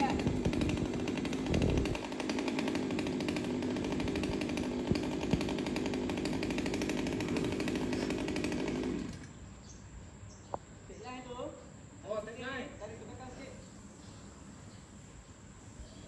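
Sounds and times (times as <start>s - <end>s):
chainsaw engine running: 0.0s - 9.4s.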